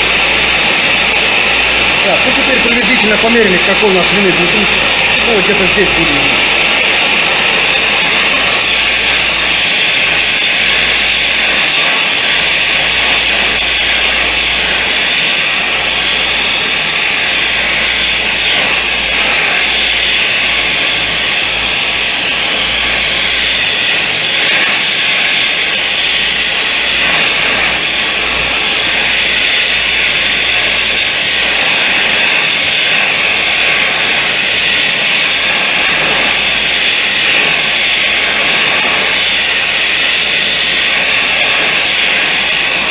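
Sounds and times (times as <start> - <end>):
forge jet-like hiss: 0.0 - 42.9.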